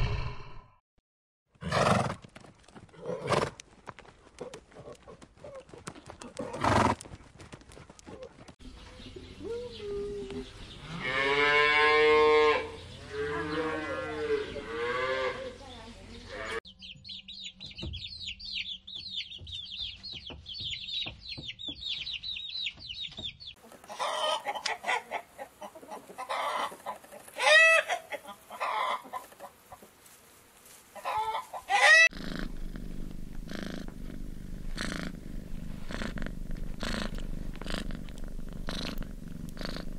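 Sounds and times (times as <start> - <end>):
chick peeping: 16.7 - 29.5
chicken calls: 18.2 - 29.9, 30.9 - 32.2
cat purring: 32.1 - 39.9.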